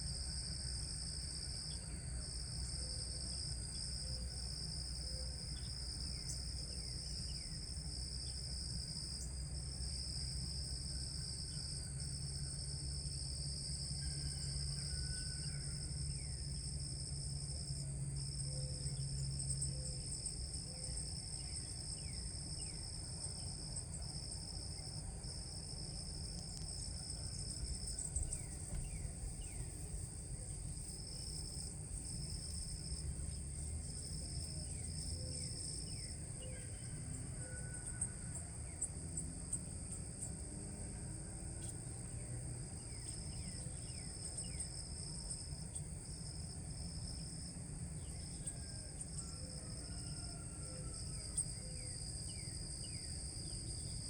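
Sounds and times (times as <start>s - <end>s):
insects trilling: 0.0s - 41.0s, 41.6s - 54.0s.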